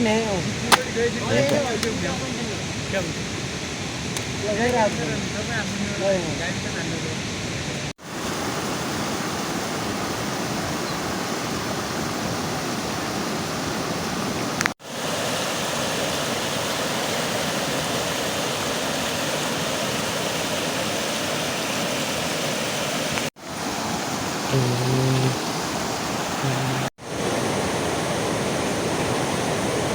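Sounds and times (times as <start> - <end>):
heavy rain: 26.2 - 29.9.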